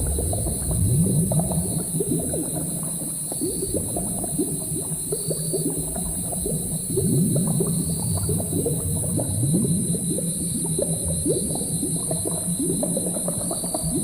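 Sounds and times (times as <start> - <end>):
low steady rumble: 0.0 - 2.6
constant high hiss: 0.0 - 14.0
thick liquid bubbling: 0.0 - 14.0.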